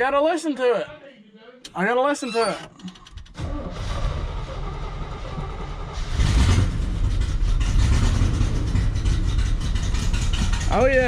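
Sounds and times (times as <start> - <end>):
vehicle engine running: 3.9 - 11.0.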